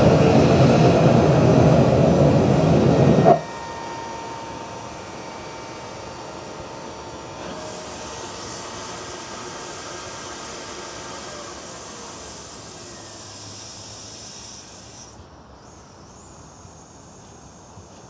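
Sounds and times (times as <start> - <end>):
continuous low roar: 0.0 - 18.0
gas hissing: 7.4 - 15.2.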